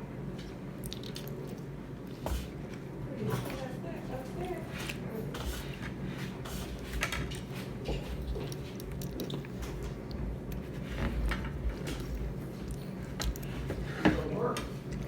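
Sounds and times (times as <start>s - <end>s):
low background hum: 0.0s - 15.0s
wet chewing and biting: 0.4s - 3.0s, 7.1s - 13.9s.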